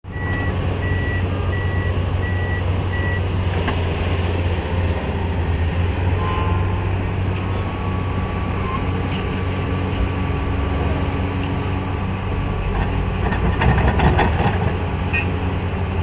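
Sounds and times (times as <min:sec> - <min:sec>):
heavy diesel engines rumbling: 0:00.0 - 0:16.0
backup alarm beeping: 0:00.1 - 0:03.3.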